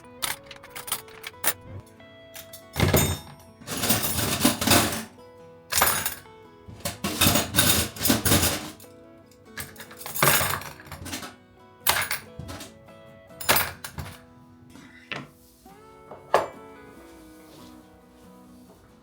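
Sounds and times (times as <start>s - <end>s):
dishes clattering and clinking: 0.0s - 5.1s, 5.7s - 8.9s, 9.5s - 12.8s, 13.4s - 15.4s, 16.1s - 16.6s
soft background music: 0.0s - 19.0s.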